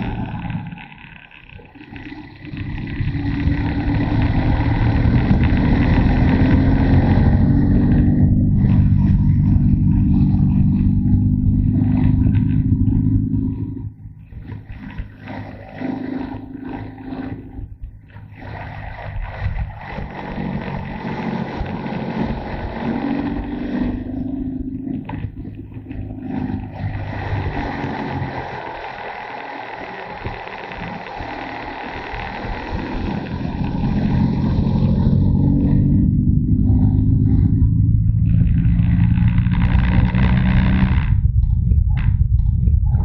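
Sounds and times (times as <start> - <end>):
motorcycle engine revving: 0.0 - 43.0
wind rushing over microphone: 32.2 - 43.0.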